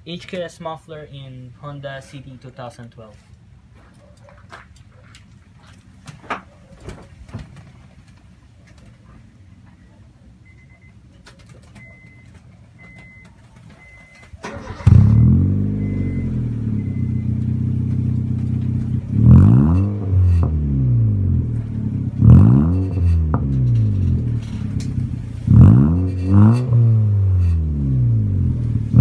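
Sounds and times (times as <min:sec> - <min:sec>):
faint high beeps: 0:10.4 - 0:11.1, 0:11.8 - 0:14.3, 0:15.0 - 0:18.8
car engine starting and idling: 0:11.3 - 0:29.0
car engine revving: 0:14.4 - 0:29.0.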